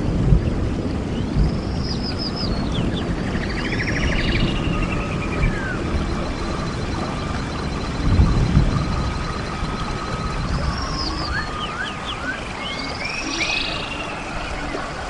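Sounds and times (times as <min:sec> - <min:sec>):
low wind rumble: 0:00.0 - 0:15.0
birds calling: 0:00.4 - 0:15.0
whistled notes sliding downward: 0:03.3 - 0:15.0.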